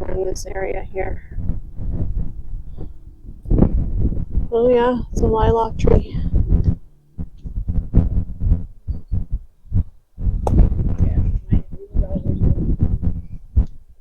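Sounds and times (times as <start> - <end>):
low thumps and rumbling: 0.0 - 14.0.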